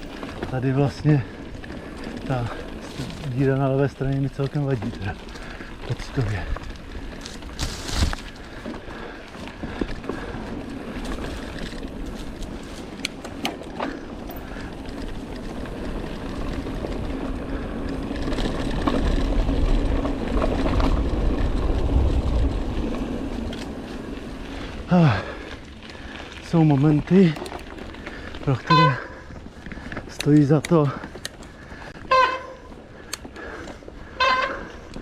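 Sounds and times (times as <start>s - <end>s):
bike tyres rolling on dirt: 0.0s - 35.0s
bike clicks and knocks: 1.8s - 21.5s, 26.6s - 35.0s
wind rumble on microphone: 14.7s - 24.9s.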